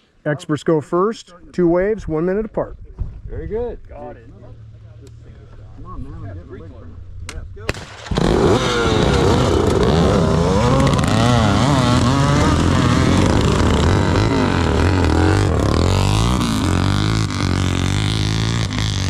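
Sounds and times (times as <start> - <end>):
other motorcycle engines running: 4.1 - 19.0
dirt bike engine revving: 8.0 - 19.0.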